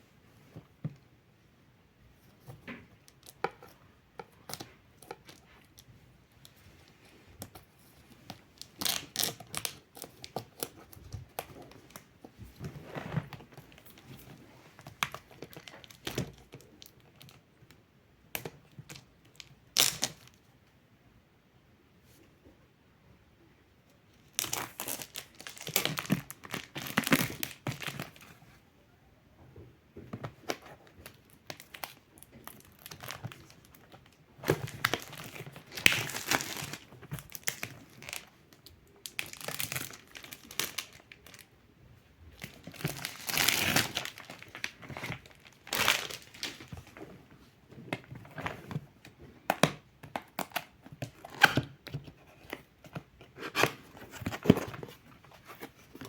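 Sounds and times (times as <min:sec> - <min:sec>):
plastic wrap crinkling: 0:14.8 - 0:17.3, 0:24.2 - 0:28.2, 0:30.4 - 0:41.5, 0:42.3 - 0:47.1.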